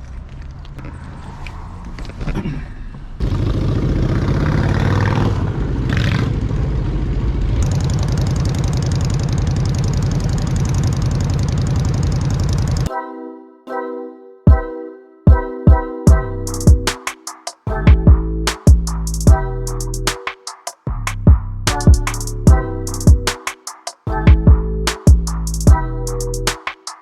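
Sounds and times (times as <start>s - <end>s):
vehicle engine revving: 0.0s - 12.9s.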